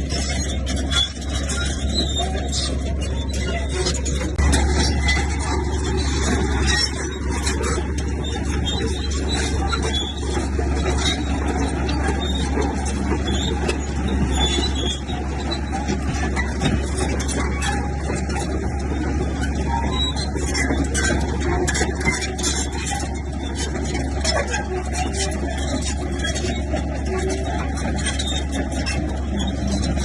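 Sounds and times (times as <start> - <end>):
diesel engine drone: 0.0 - 30.0.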